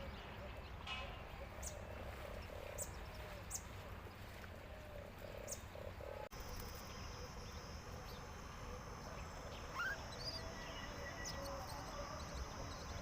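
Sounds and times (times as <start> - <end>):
rising bird chirp: 6.8 - 13.0.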